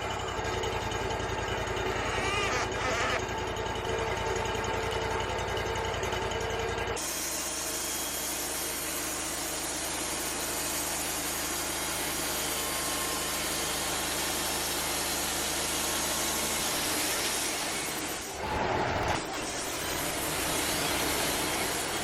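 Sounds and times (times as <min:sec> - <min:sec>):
engine hum: 0:00.0 - 0:07.1.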